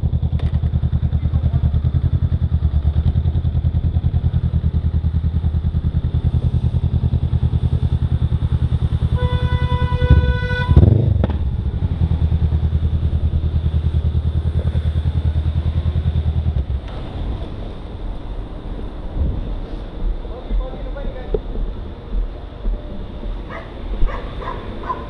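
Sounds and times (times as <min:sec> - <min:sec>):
motorcycle engine idling: 0:00.0 - 0:19.0
vehicle horn: 0:09.0 - 0:11.0.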